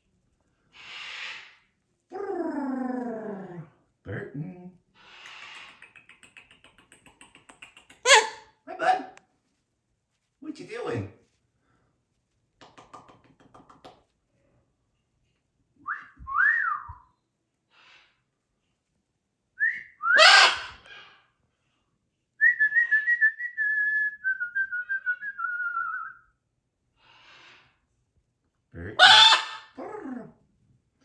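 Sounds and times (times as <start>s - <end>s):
macaw calling: 29.0s - 29.7s.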